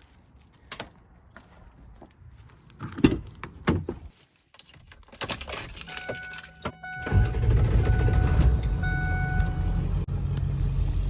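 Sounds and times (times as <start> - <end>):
keys jangling: 4.0 - 6.8
electronic chime: 5.9 - 9.8
diesel engine starting and running: 6.3 - 11.0.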